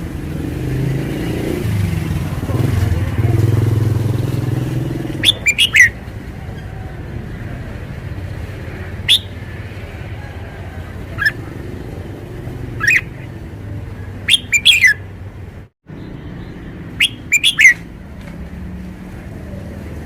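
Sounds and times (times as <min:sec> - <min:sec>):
bulbul whistled song: 0:05.2 - 0:06.0, 0:09.0 - 0:09.6, 0:10.5 - 0:11.5, 0:12.7 - 0:13.3, 0:14.2 - 0:15.1, 0:16.9 - 0:17.9.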